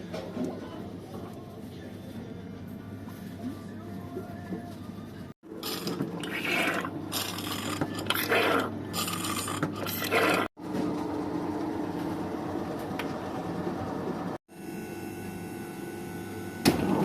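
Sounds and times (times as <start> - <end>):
rasping scraping strokes: 5.6 - 10.5.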